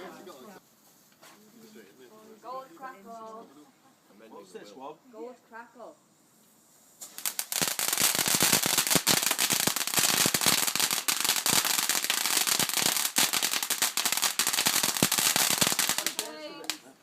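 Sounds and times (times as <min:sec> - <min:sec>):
crackling firework: 0:06.3 - 0:17.0.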